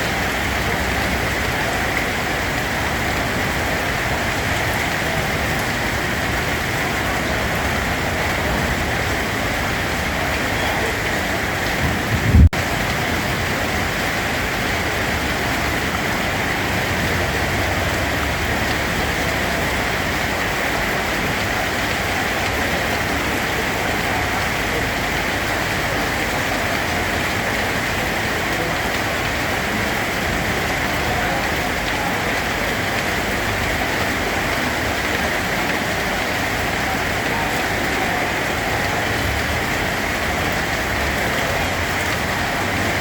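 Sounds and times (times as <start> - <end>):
steady rain: 0.0 - 43.0
low thump: 11.8 - 12.6.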